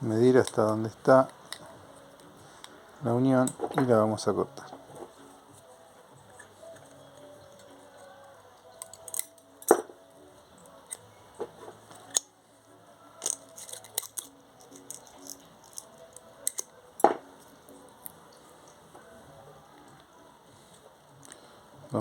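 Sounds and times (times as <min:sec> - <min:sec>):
scissors snipping thin metal: 0:16.4 - 0:16.7.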